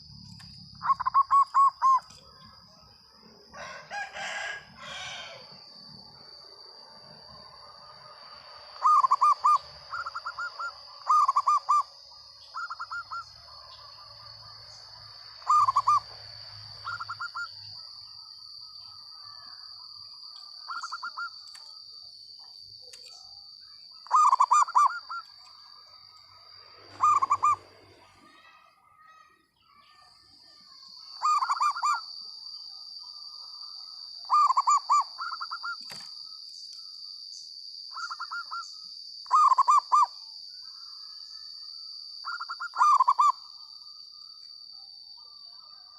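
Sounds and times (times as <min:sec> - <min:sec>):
steady high-pitched whine: 0:00.0 - 0:28.8, 0:29.4 - 0:45.9
dove cooing: 0:00.8 - 0:02.1, 0:08.8 - 0:12.0, 0:12.6 - 0:13.8, 0:15.4 - 0:16.1, 0:16.8 - 0:17.6, 0:24.0 - 0:25.4, 0:26.9 - 0:27.8, 0:31.2 - 0:32.0, 0:34.3 - 0:35.8, 0:38.0 - 0:38.6, 0:39.3 - 0:40.1, 0:42.3 - 0:43.4.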